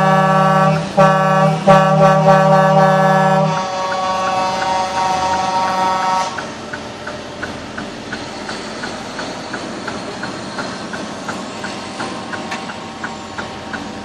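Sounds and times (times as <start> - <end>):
brass music: 0.0 - 6.3
sharp regular ticking: 6.3 - 14.0.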